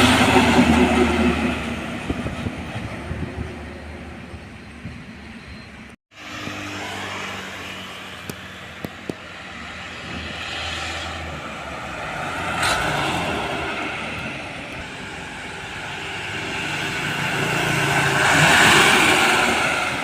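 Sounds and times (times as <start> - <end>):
vehicle passing on road: 6.1 - 20.0.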